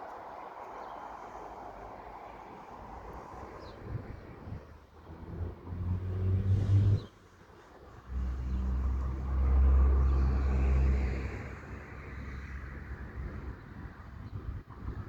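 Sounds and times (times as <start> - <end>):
diesel rail engine hum: 0.0 - 14.7
passing engine: 2.9 - 14.2.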